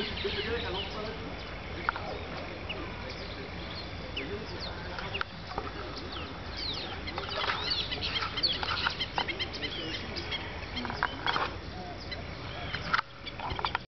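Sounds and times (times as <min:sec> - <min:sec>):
flock of birds chirping: 0:00.0 - 0:13.9
low background hum: 0:00.0 - 0:13.9.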